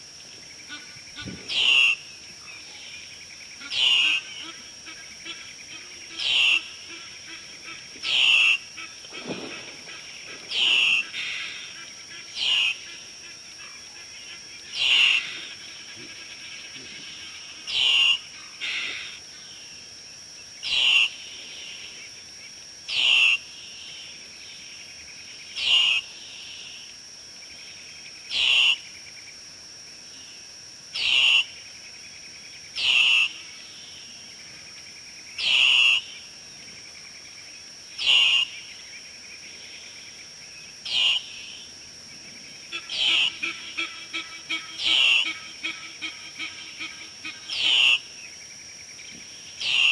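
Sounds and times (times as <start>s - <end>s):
bird calling: 0.7s - 19.5s, 20.6s - 21.2s, 22.9s - 23.4s, 32.8s - 33.5s, 35.4s - 36.2s, 38.0s - 38.7s, 40.9s - 41.4s, 42.7s - 48.1s, 49.6s - 49.9s.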